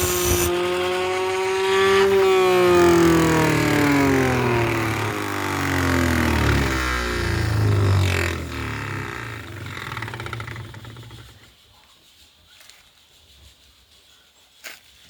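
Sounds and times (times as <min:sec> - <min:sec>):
blender motor humming and whirring: 0:00.0 - 0:11.4.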